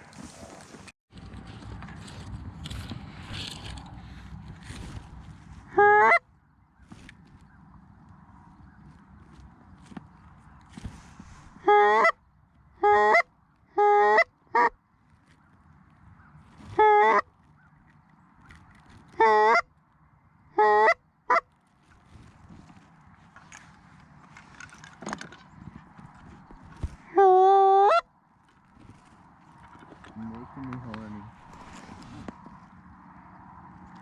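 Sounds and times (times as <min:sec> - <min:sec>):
goose honks: 0:05.7 - 0:06.2, 0:11.6 - 0:12.2, 0:12.8 - 0:14.8, 0:16.7 - 0:17.3, 0:19.2 - 0:19.7, 0:20.6 - 0:21.4.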